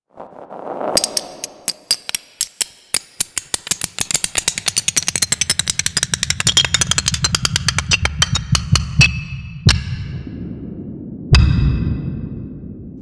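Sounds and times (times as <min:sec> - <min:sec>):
plastic blocks clacking: 0:01.0 - 0:09.2
low rumble: 0:08.0 - 0:13.0.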